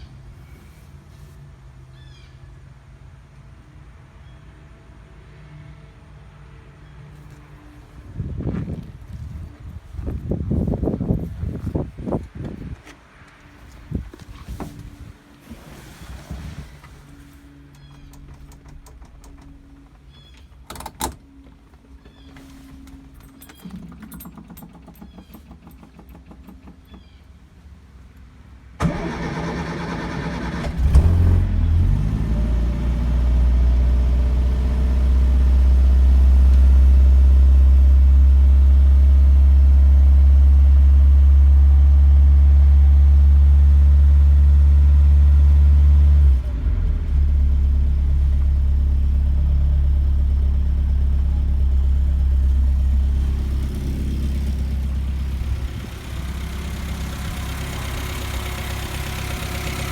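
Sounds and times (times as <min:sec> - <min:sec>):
starter motor cranking: 0:28.8 - 0:31.2
car engine running: 0:28.8 - 0:59.9.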